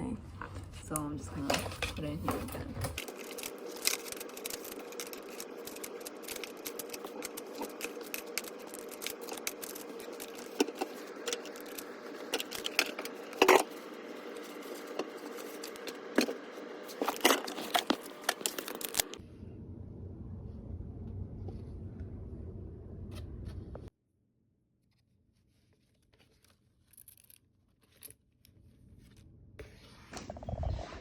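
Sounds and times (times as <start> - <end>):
steady low hum: 0.0 - 23.9
magnetic toy cubes clattering: 1.2 - 19.2.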